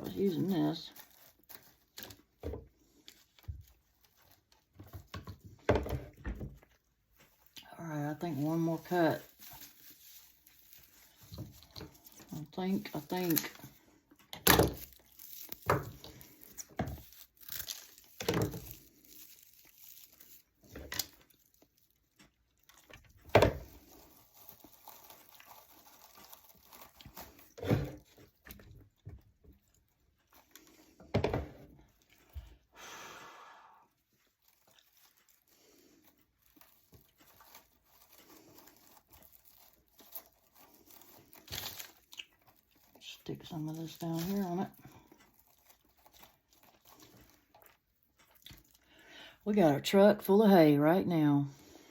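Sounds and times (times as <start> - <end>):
hay rustling and crinkling: 7.1 - 13.4, 14.8 - 20.7.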